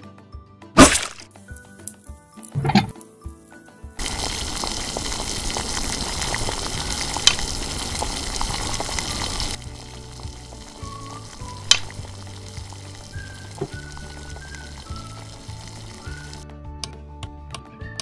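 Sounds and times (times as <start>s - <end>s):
potatoes sizzling in a pan: 4.0s - 16.4s.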